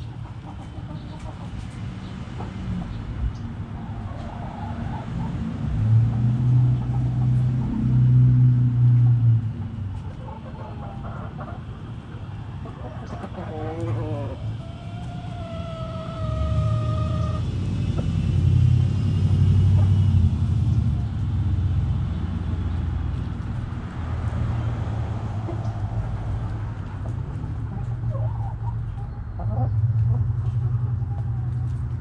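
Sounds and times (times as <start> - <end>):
hen clucks: 0.0 - 1.8, 10.0 - 18.1, 27.0 - 31.5
rooster crowing: 13.5 - 17.4
steady low rumble: 16.0 - 32.0.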